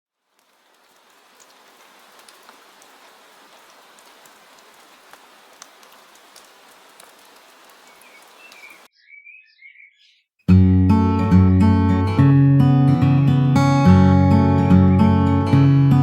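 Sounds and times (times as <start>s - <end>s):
soft rain hiss: 0.1s - 8.9s
drip ticks: 4.0s - 8.8s
bird chirping: 7.6s - 10.5s.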